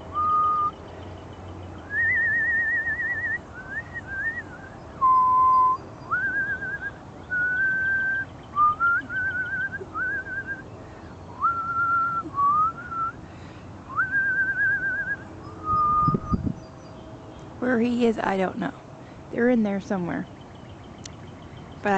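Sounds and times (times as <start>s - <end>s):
woman whistling: 0.2s - 0.8s, 1.9s - 10.6s, 11.4s - 13.2s, 13.9s - 16.4s.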